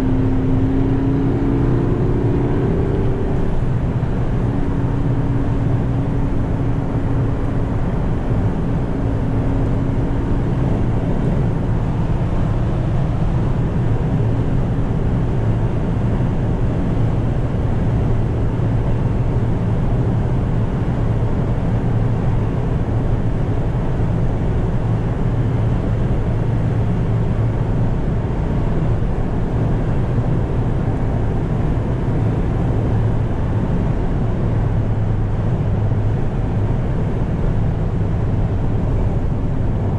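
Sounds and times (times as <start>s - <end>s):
road noise: 0.0s - 39.9s.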